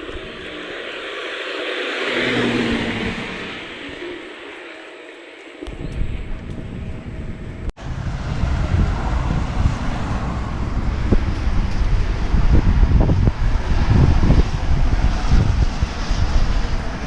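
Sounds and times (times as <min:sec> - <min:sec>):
storm wind buffeting microphone: 0:05.6 - 0:17.0.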